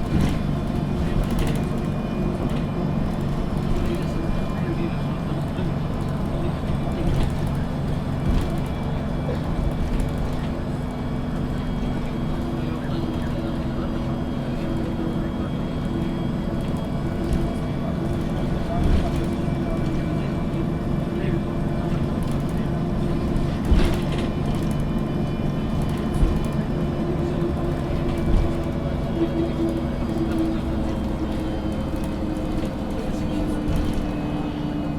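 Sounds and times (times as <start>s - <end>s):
bus engine running: 0.0s - 34.9s
road noise: 0.0s - 34.9s.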